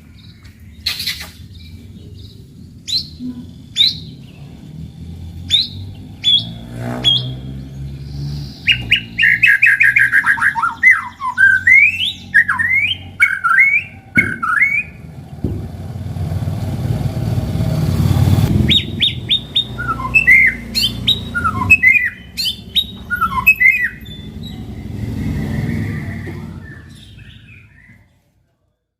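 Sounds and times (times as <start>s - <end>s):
songbird singing whistled notes: 0.0s - 4.6s, 5.4s - 15.1s, 18.6s - 28.2s
low rumble: 14.0s - 20.1s, 20.8s - 28.0s.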